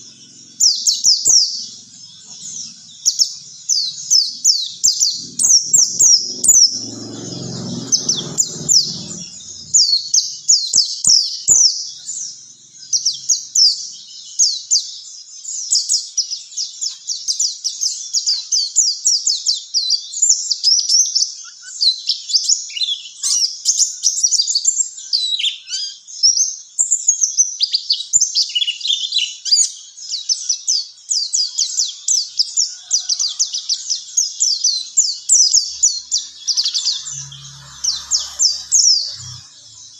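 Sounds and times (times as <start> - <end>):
bird twittering chirps: 0.0 - 15.9, 32.7 - 39.9
low rumble: 3.7 - 10.4, 35.4 - 39.9.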